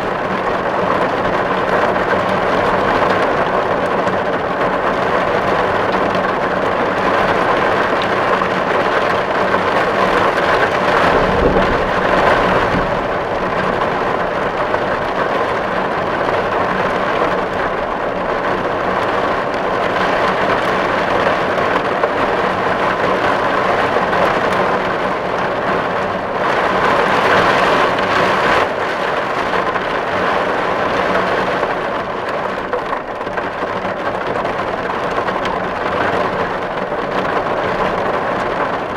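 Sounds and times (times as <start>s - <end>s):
heavy rain on a tin roof: 0.0s - 38.9s
low rumble: 10.0s - 16.4s.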